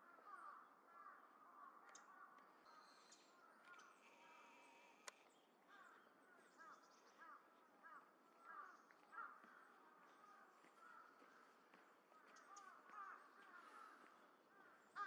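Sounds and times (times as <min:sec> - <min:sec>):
crow cawing: 0:00.0 - 0:02.4, 0:05.7 - 0:06.0, 0:06.6 - 0:15.0.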